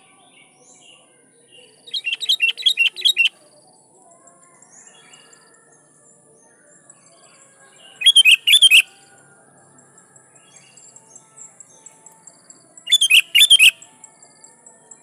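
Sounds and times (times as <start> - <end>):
faint bird chirps: 0.0 - 9.2, 9.8 - 15.0
bulbul whistled notes: 12.9 - 13.8.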